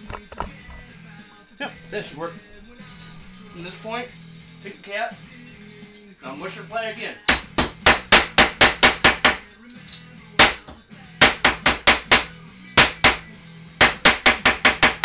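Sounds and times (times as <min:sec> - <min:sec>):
hammer striking bottle cap: 0:07.3 - 0:13.2.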